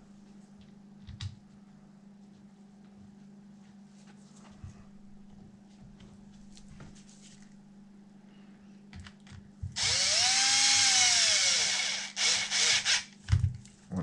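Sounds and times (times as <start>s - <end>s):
power drill running: 9.8s - 13.2s.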